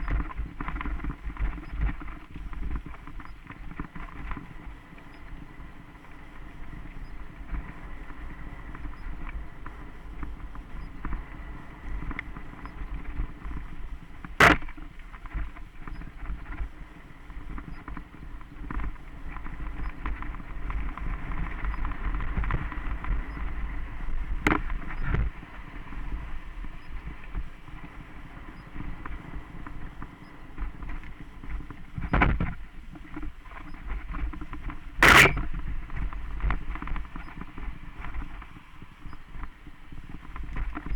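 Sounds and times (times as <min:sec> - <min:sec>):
bike tyres rolling on dirt: 0:00.0 - 0:40.9.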